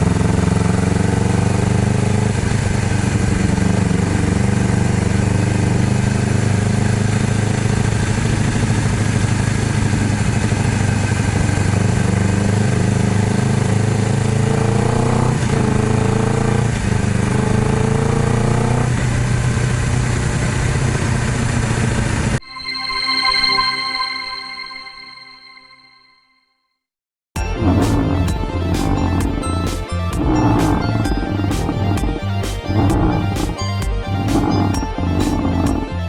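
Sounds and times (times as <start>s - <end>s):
motorcycle engine accelerating: 0.0s - 22.4s, 27.4s - 36.0s
gear upshift: 27.4s - 36.0s.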